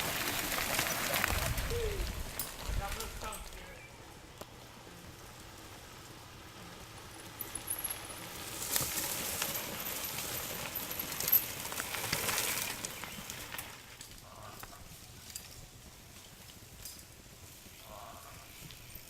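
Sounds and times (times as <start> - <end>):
bike clattering over roots: 0.0 - 3.8, 7.0 - 17.2
bike tyres on dirt: 0.0 - 19.0.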